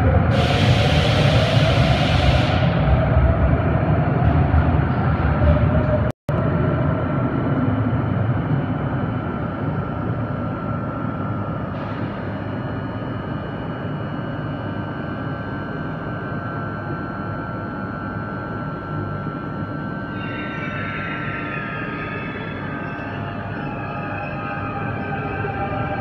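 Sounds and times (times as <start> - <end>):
train rumbling into station: 0.0 - 13.8, 19.7 - 26.0
whining tones: 19.2 - 26.0.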